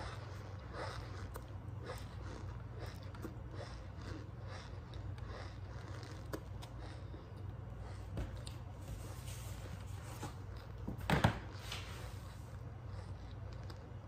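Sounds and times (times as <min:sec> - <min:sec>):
squeaky crunchy chewing: 0:00.0 - 0:08.5
low steady hum: 0:00.0 - 0:14.0.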